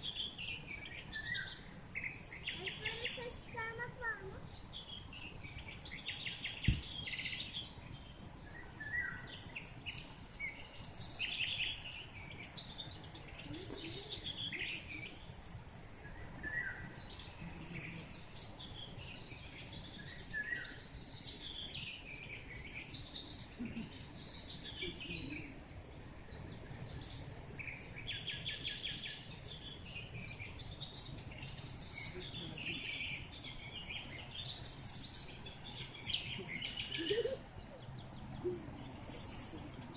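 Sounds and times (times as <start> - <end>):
birds singing and calling: 0.0 - 39.9
short low thump: 6.6 - 6.9.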